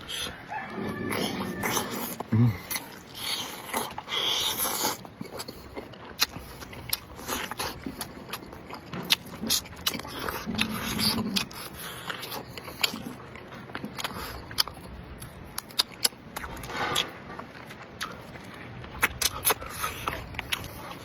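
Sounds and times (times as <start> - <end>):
person chewing and biting: 0.0 - 21.0
mouth clicks and smacks: 18.0 - 21.0.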